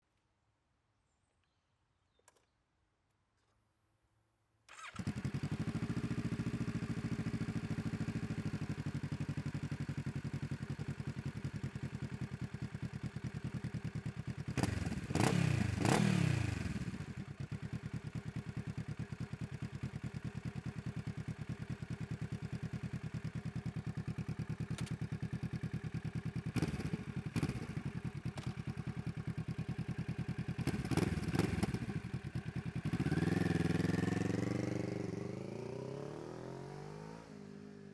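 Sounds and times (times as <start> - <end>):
motorcycle engine starting: 4.7 - 37.7
motorcycle engine idling: 4.8 - 35.6
engine revving: 14.6 - 17.0, 30.6 - 32.0, 32.8 - 37.6.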